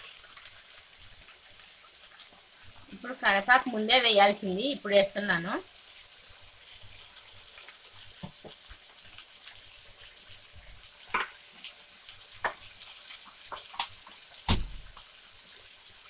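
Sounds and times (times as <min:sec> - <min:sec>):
frying sizzle: 0:00.0 - 0:16.0.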